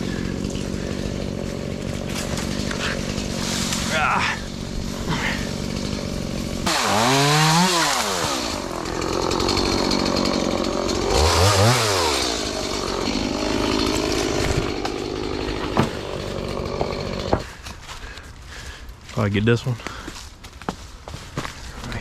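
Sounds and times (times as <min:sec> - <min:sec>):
chainsaw revving: 0:00.0 - 0:17.5.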